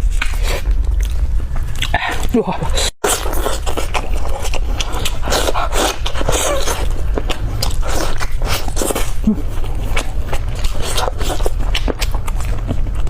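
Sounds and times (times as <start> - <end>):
chewing on a bone: 3.0 - 13.0.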